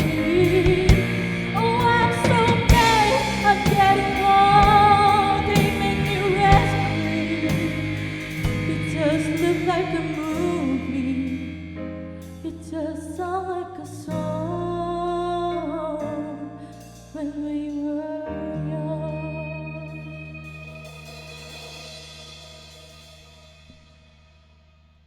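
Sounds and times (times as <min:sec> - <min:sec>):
person singing: 0:00.0 - 0:11.6
keyboard chords: 0:00.0 - 0:23.1
bass chords: 0:00.0 - 0:24.6.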